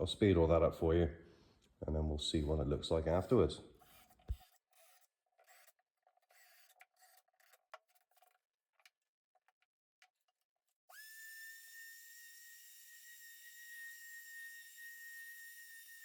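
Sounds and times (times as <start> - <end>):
faint rubbing and scraping: 3.2 - 8.4.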